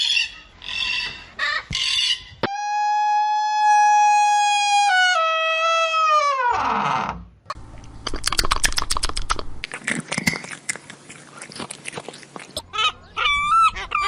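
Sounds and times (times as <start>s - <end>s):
animal chewing crunchily: 7.6s - 13.3s.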